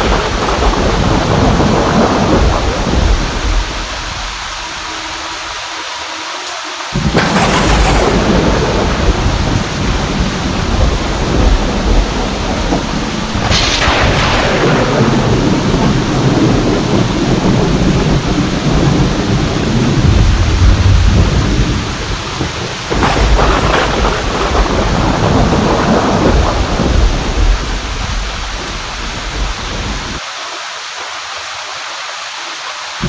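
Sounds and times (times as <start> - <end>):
rolling thunder: 0.0 - 4.8, 7.0 - 30.2
heavy rain: 0.0 - 33.0.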